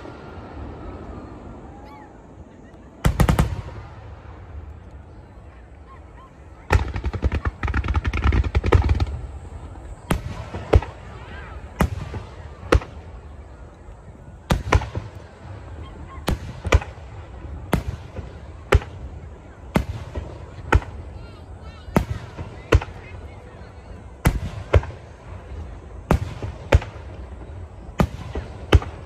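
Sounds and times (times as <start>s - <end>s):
crackling firework bangs: 3.0s - 4.5s, 6.6s - 13.3s, 14.4s - 21.2s, 21.9s - 23.2s, 24.2s - 29.0s.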